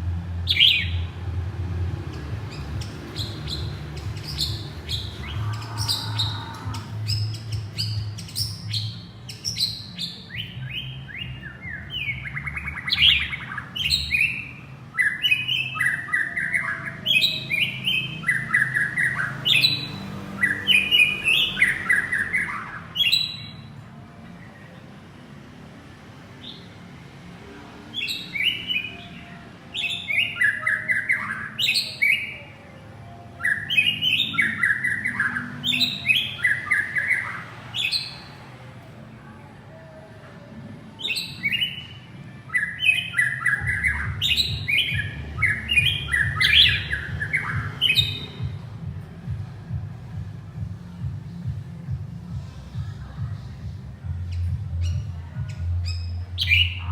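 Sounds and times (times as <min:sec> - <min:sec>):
bird singing whistled notes: 0:00.5 - 0:01.1, 0:02.5 - 0:23.7, 0:28.0 - 0:32.5, 0:33.4 - 0:38.3, 0:41.0 - 0:48.6, 0:54.1 - 0:56.9.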